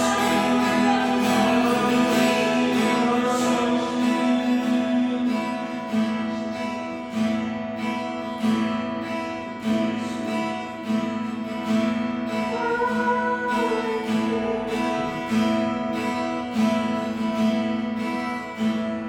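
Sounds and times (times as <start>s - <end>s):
person singing softly: 0.0s - 5.9s, 12.5s - 15.4s
acoustic guitar strumming: 0.0s - 19.0s.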